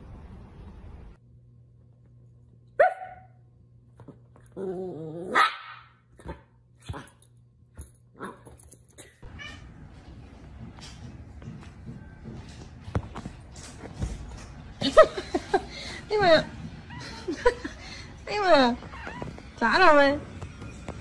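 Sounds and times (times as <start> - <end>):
dog barking: 2.8 - 3.4, 5.3 - 7.1.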